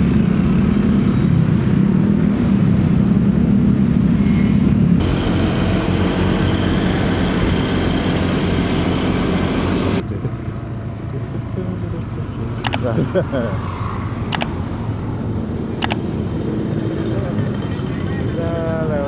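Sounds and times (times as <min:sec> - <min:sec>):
road noise: 0:00.0 - 0:19.0
motorcycle engine: 0:04.2 - 0:10.0.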